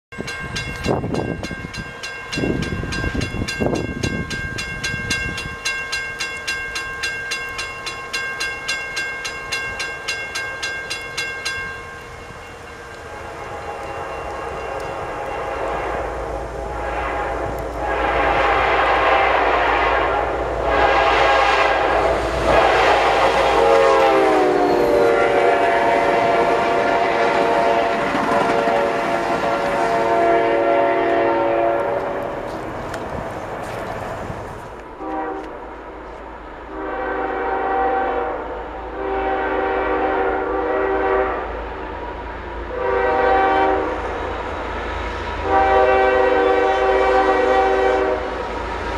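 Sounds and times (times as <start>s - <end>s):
crossing warning bell ringing: 0.1s - 16.7s, 22.6s - 32.5s
freight train rumbling: 0.1s - 48.9s
train horn: 12.9s - 32.5s, 35.0s - 36.0s, 36.7s - 42.0s, 42.6s - 48.9s.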